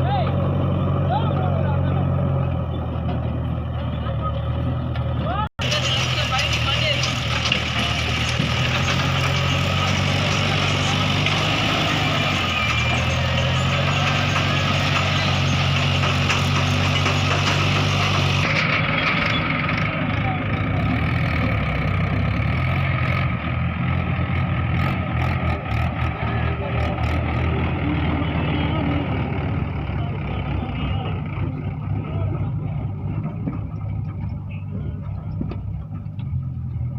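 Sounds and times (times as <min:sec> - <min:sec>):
tractor diesel engine droning: 0:00.0 - 0:36.9.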